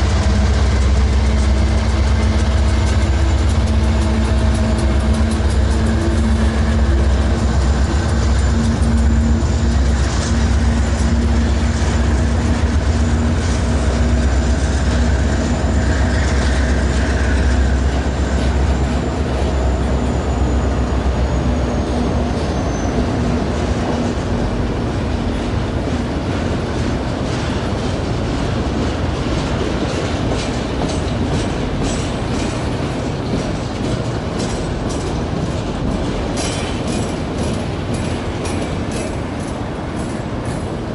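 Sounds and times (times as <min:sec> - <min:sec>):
locomotive engine rumble: 0:00.0 - 0:40.9
train wheels clicking on rails: 0:00.0 - 0:40.9
high wheel squeal: 0:14.9 - 0:23.5.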